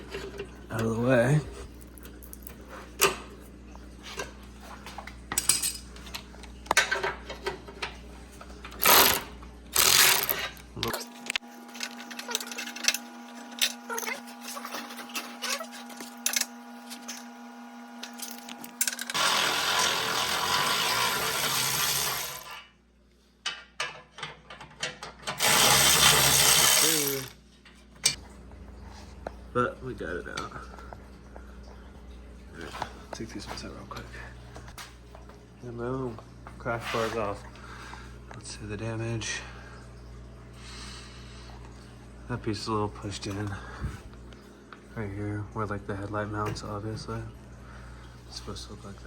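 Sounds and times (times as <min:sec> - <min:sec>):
metal tools clinking: 0:05.3 - 0:06.2, 0:08.8 - 0:17.3
power tool bursts: 0:08.8 - 0:10.4, 0:19.1 - 0:22.6, 0:25.4 - 0:27.4.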